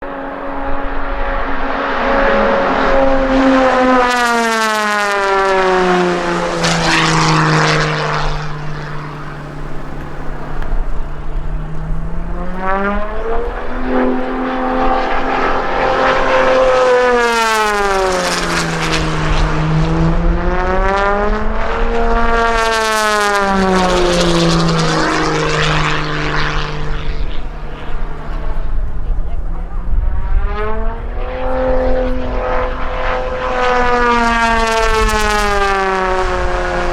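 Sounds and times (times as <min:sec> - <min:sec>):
propeller plane engine: 0:00.0 - 0:36.9.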